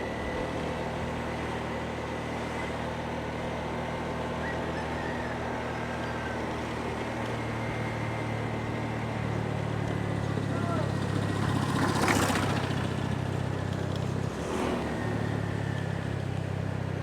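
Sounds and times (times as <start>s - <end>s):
road and wind noise: 0.0s - 17.0s
motorbike engine running: 6.2s - 17.0s.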